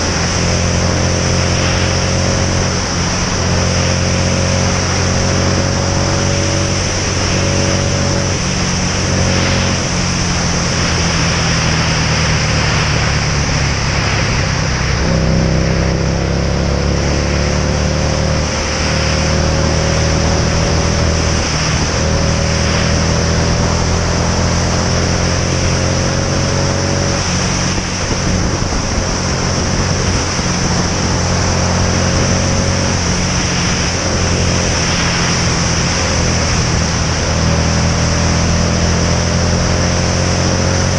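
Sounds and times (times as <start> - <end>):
motorcycle engine accelerating: 0.0 - 40.9
wind rush on microphone: 0.0 - 40.9.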